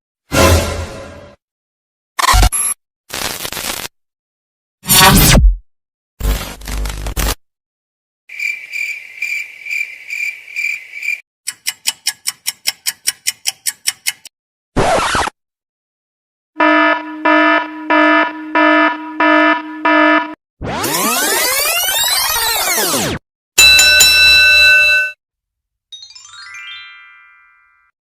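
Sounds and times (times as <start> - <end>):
cricket chirping: 8.3 - 11.2
electronic alarm beep: 16.6 - 21.2
synthesized rising tones: 17.2 - 23.2.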